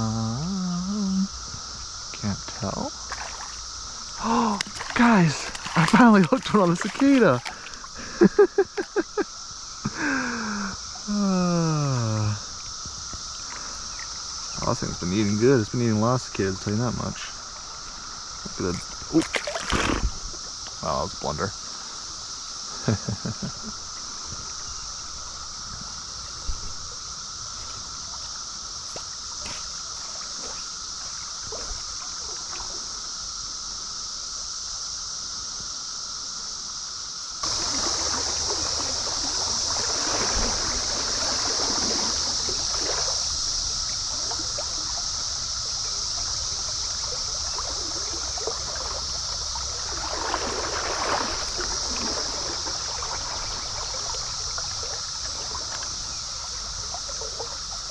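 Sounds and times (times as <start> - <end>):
cicadas droning chorus: 0.0 - 57.9
stream water flowing: 1.2 - 35.2, 37.3 - 57.9
water splashing: 2.6 - 22.0, 27.5 - 33.1, 37.4 - 57.9.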